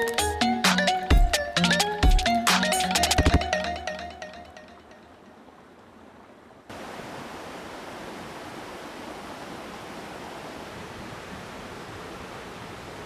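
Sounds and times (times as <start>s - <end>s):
background music: 0.0s - 4.8s
mountain stream rushing: 1.2s - 13.0s.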